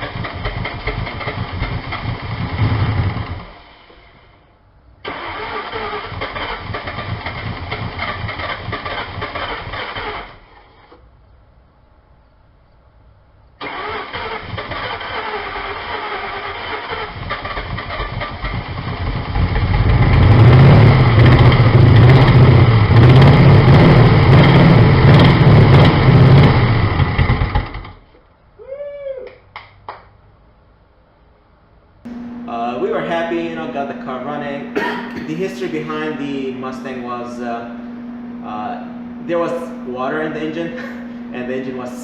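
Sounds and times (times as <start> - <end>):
car engine running and revving: 0.0 - 3.5, 17.2 - 28.0.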